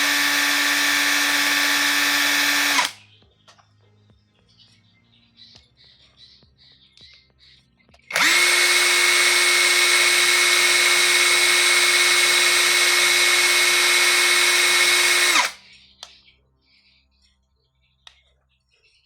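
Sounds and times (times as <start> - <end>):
cordless impact driver running: 0.0 - 3.0, 8.1 - 15.6.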